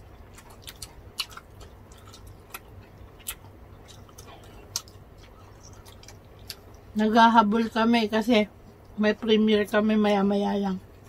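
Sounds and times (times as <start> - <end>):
soft chewing: 0.0 - 7.8.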